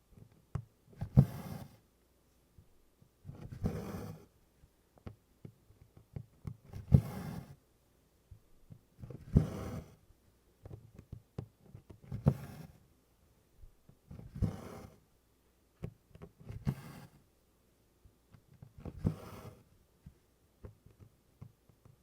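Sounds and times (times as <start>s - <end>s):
faint taps and ticks: 4.9s - 6.6s, 20.0s - 22.0s.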